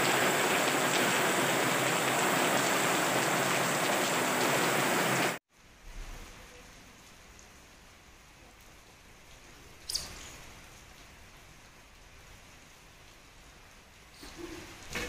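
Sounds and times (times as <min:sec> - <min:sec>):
heavy rain on wet road: 0:00.0 - 0:09.8.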